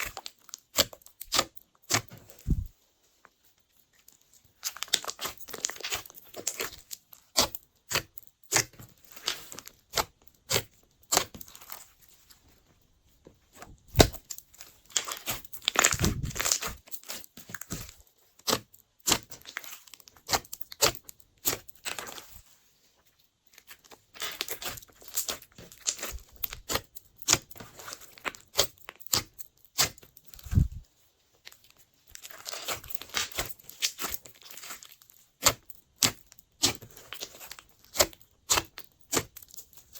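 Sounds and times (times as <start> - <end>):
slime squished by hand: 13.8 - 21.7.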